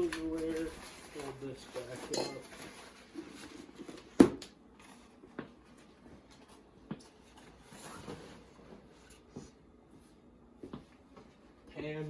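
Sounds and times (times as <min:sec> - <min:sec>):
cookware knocking and rustling: 0:02.0 - 0:02.5.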